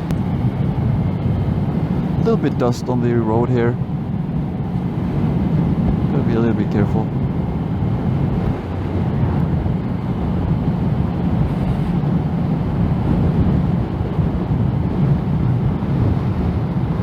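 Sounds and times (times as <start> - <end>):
motorcycle engine drone: 0.0 - 17.0
wind roar on microphone: 0.0 - 17.0.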